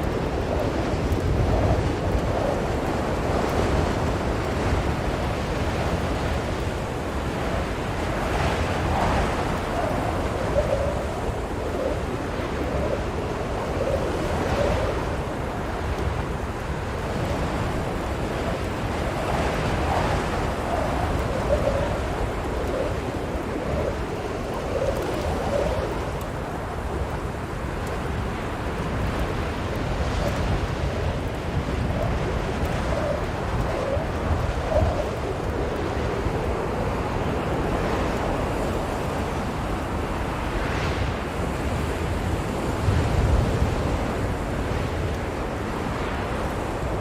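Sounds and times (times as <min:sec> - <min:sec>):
blizzard wind blowing: 0:00.0 - 0:47.0
wavering wind howl: 0:00.0 - 0:47.0.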